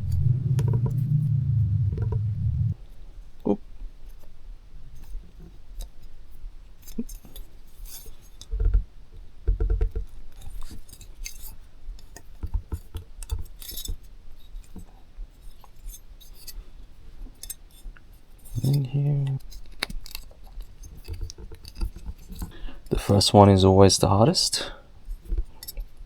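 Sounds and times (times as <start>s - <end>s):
dull thumps: 0.0s - 2.8s.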